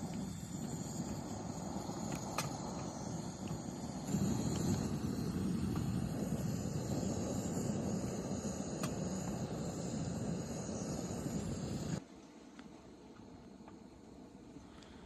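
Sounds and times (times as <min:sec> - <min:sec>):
steady low rumbling: 0:00.0 - 0:12.0.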